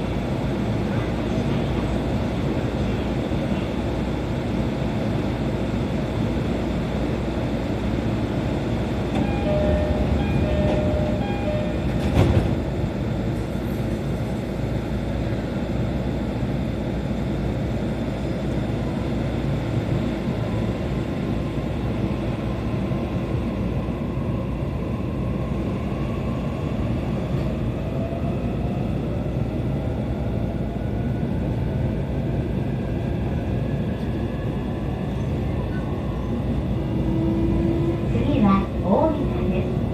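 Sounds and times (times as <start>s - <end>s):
train wheel and running noise: 0.0s - 39.9s
brief tones: 9.2s - 12.0s.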